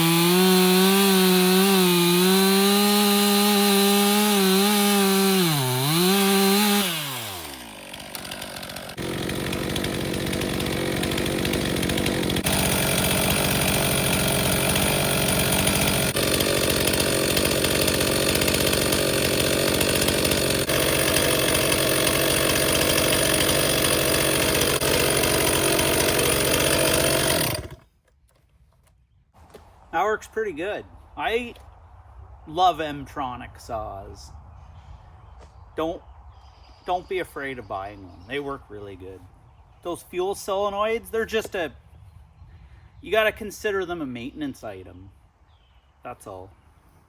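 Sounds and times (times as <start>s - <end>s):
chainsaw cutting at full throttle: 0.0s - 27.9s.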